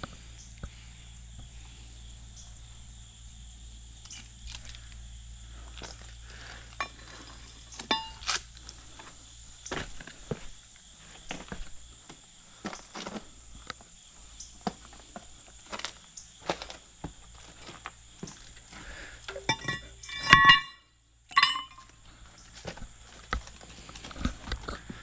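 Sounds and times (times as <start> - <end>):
stones and metal clinking: 6.7 - 9.1, 15.7 - 24.8.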